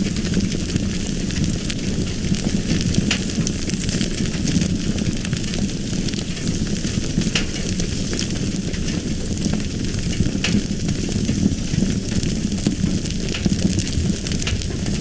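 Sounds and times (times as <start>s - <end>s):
fire crackles and pops: 0.0s - 15.0s
fire rumbling: 0.0s - 15.0s.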